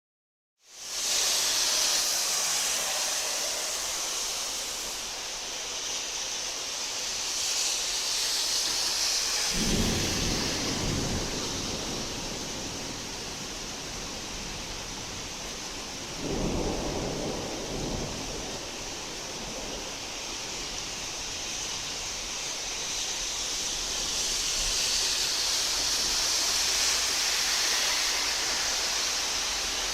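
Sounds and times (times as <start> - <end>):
heavy rain hissing: 0.6 - 29.9
thunder rolling: 9.4 - 20.5.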